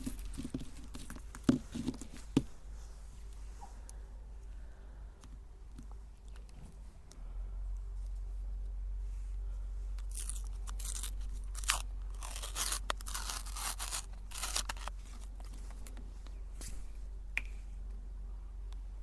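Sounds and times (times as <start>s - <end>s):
meat grinder crushing wafer cones: 10.0s - 15.5s.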